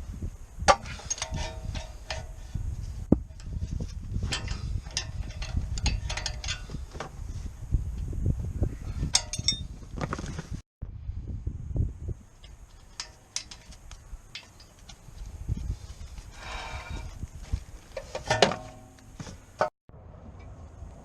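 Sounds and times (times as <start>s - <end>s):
tools and metal parts clinking: 0.7s - 2.6s, 4.2s - 7.1s, 9.1s - 9.7s, 12.4s - 15.0s.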